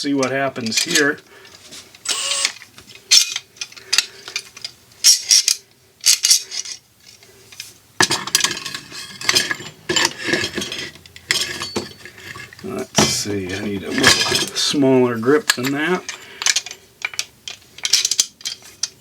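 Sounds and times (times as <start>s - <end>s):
steel tools clinking: 8.1s - 14.8s.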